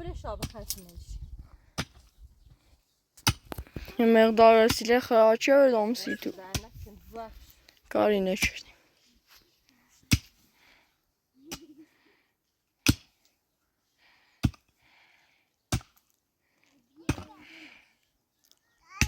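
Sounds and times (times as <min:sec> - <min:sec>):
axe chopping firewood: 0:03.2 - 0:03.8, 0:10.1 - 0:10.4, 0:12.8 - 0:13.2, 0:14.4 - 0:14.7, 0:15.7 - 0:16.2, 0:17.1 - 0:17.4.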